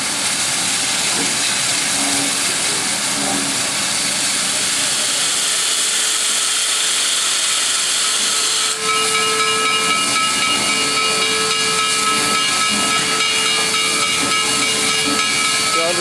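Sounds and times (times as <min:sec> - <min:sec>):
steam hissing: 0:00.0 - 0:16.0
steady whistling tone: 0:08.2 - 0:16.0.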